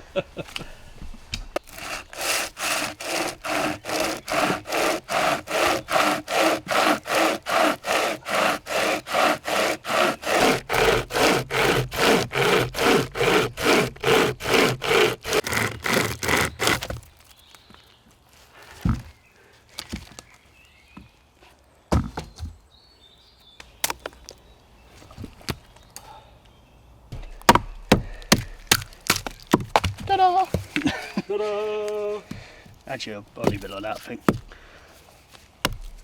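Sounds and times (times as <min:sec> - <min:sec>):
pruning saw cutting a branch: 0:01.6 - 0:17.1, 0:33.4 - 0:34.6.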